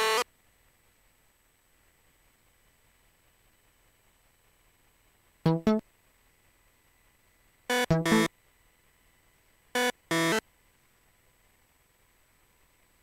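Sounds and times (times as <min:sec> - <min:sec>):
synthesizer riff: 0:05.5 - 0:05.8, 0:07.7 - 0:08.3, 0:09.8 - 0:10.4.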